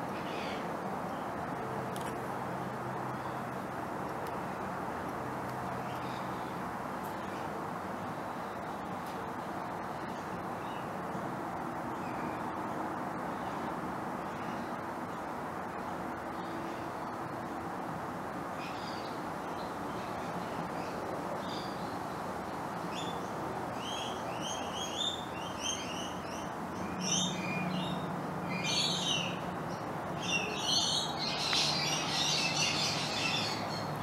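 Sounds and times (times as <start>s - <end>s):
birds chirping: 18.6s - 34.0s.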